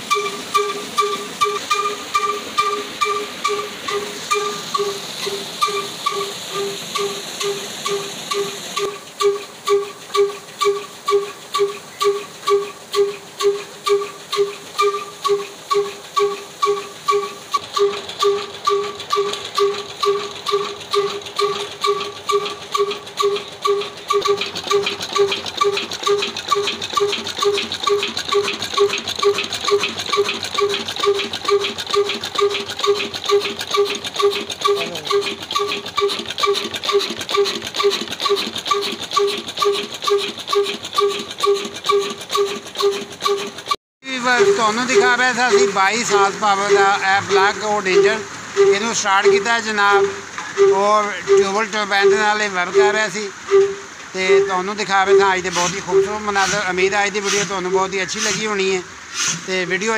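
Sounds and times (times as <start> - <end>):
diesel engine running: 0.0 - 59.7.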